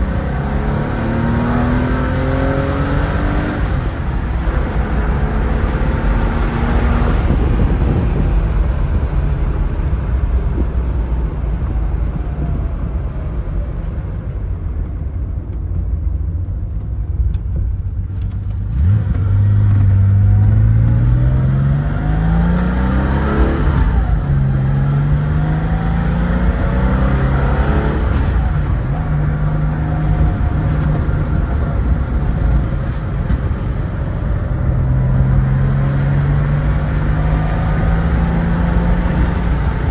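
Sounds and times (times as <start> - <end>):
car engine revving: 0.0 - 14.4, 18.1 - 39.9
gear upshifts: 0.0 - 39.9.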